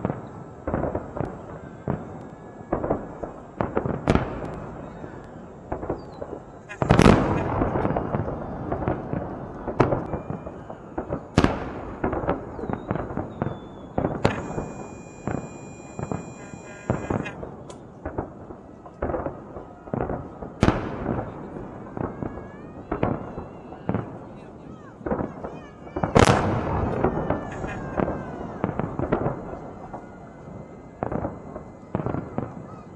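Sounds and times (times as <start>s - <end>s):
fireworks bursting: 0.0s - 32.9s
fireworks crackling: 0.0s - 32.9s
high firework whistle: 0.0s - 32.9s.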